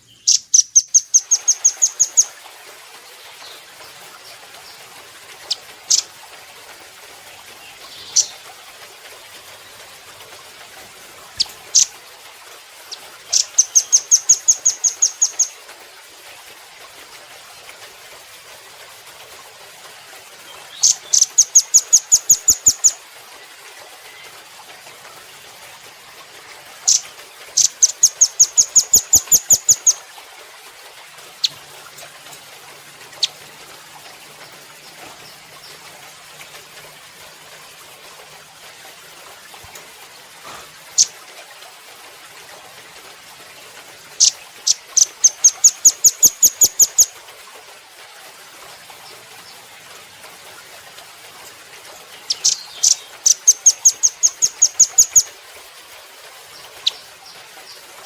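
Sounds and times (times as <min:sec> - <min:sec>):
bird calling with sharp high chips: 0:00.0 - 0:02.3, 0:12.9 - 0:15.6, 0:26.9 - 0:30.0, 0:44.2 - 0:47.1, 0:52.3 - 0:55.3.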